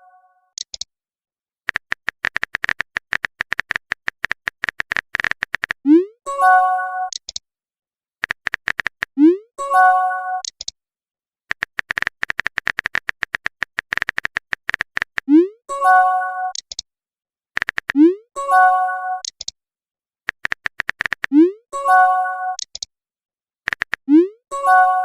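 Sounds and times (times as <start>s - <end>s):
phone keyboard tapping clicks: 0.6s - 0.9s, 1.7s - 5.8s, 7.1s - 7.4s, 8.2s - 9.2s, 10.4s - 10.7s, 11.5s - 15.3s, 16.5s - 16.8s, 17.6s - 18.0s, 19.2s - 19.5s, 20.3s - 21.3s, 22.6s - 22.9s, 23.7s - 24.1s
chat message chord chime: 24.6s - 25.0s.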